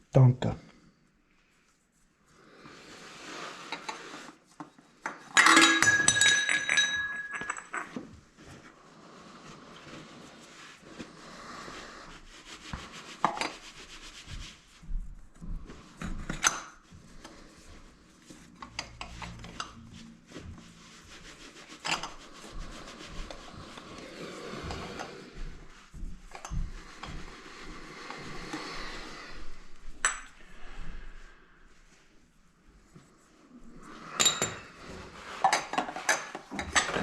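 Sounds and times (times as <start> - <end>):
metal clinks: 5.4 - 8.0.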